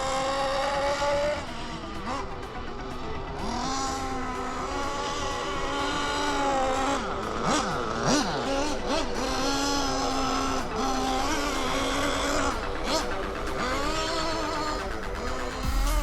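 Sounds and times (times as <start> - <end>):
rc car nitro engine running: 0.0 - 15.6.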